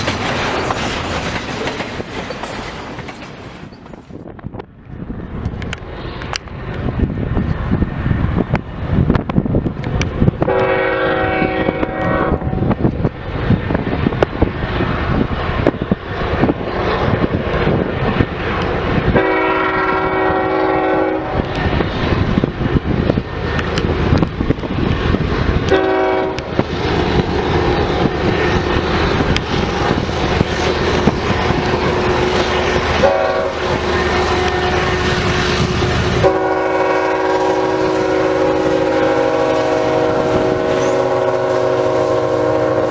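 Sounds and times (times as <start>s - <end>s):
train rumbling past: 0.0s - 42.9s
wind buffeting microphone: 0.0s - 42.9s
locomotive air horn: 10.4s - 12.8s, 19.1s - 21.6s, 25.7s - 26.6s, 33.0s - 42.9s.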